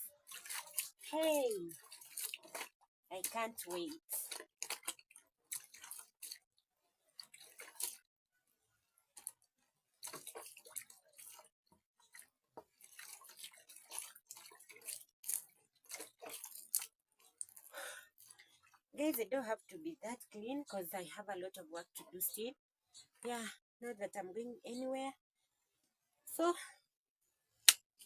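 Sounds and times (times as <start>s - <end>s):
hands splashing water in a basin: 0.0s - 8.1s, 9.1s - 18.8s.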